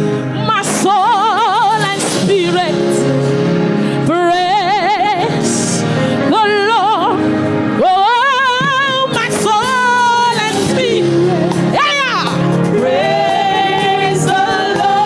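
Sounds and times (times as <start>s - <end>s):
band accompaniment: 0.0s - 5.9s, 7.0s - 15.0s
woman singing with vibrato: 0.3s - 3.4s, 7.8s - 15.0s.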